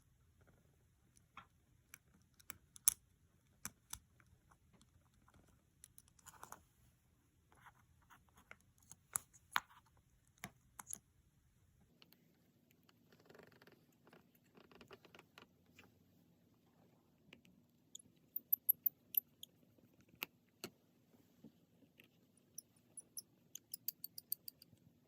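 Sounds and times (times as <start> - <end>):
small tools clicking and tapping: 18.4 - 19.4, 22.6 - 24.8.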